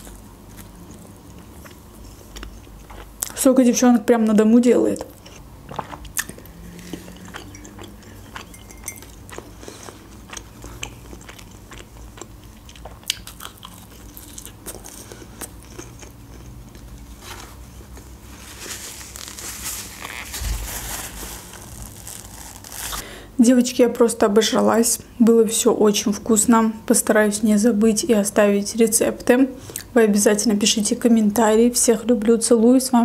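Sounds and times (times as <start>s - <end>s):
chewing a soft doughnut: 0.0s - 3.4s, 6.0s - 18.3s
soft rustle: 17.1s - 23.0s.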